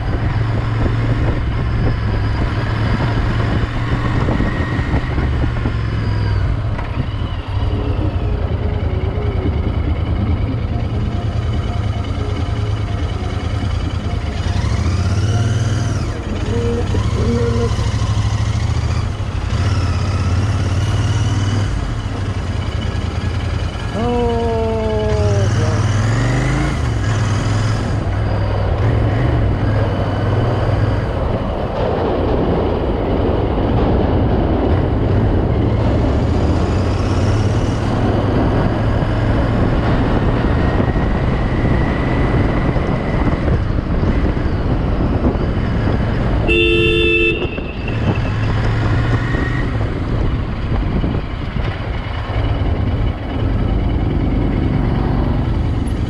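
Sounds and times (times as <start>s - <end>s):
motorcycle engine running: 0.0s - 56.0s
vehicle horn honking: 46.4s - 48.1s.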